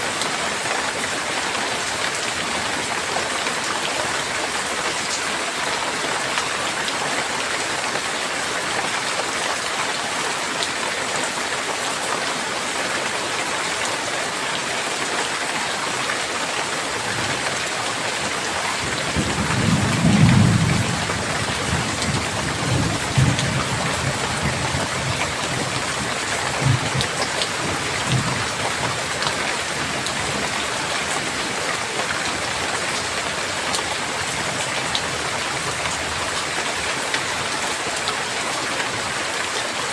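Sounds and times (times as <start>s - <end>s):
steady rain: 0.0s - 39.9s
thunder rumbling: 19.0s - 28.5s.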